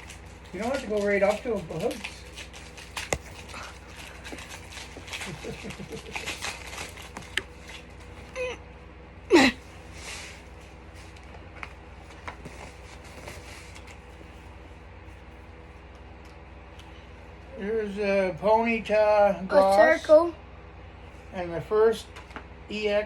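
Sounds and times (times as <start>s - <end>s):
trading cards rustling and clicking: 0.0s - 8.2s
faint steady hum: 0.0s - 23.0s.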